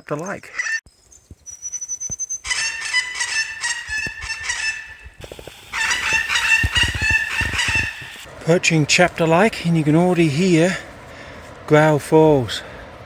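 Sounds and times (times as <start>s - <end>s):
bird high whistle: 1.4s - 5.1s, 5.7s - 8.3s
harsh repeated bird calls: 1.4s - 8.3s.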